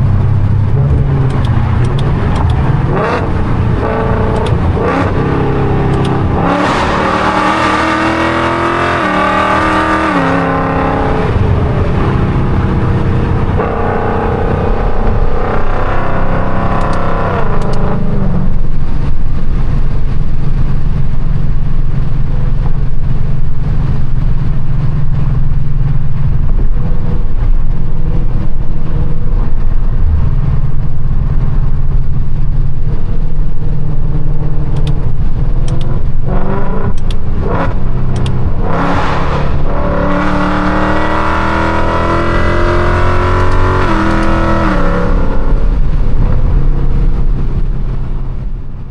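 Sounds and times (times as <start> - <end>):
car engine revving: 0.0 - 48.9.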